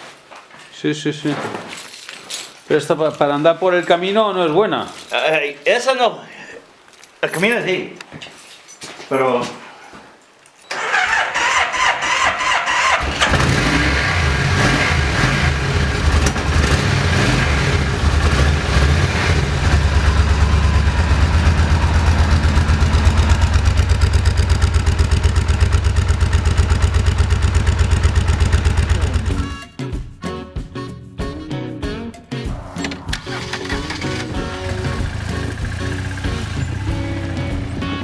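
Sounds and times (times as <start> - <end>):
motorcycle engine starting and idling: 10.7 - 29.6, 32.6 - 38.0.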